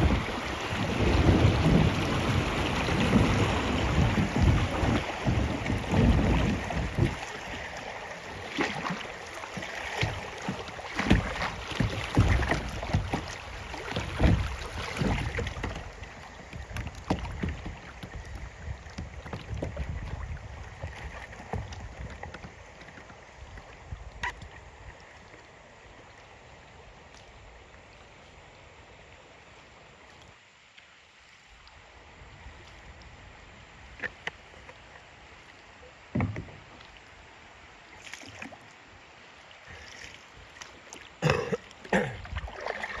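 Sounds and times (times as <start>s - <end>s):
wind buffeting microphone: 0.0s - 7.4s
paddle knocks: 0.0s - 24.5s, 36.1s - 36.9s
water splashes: 0.0s - 43.0s.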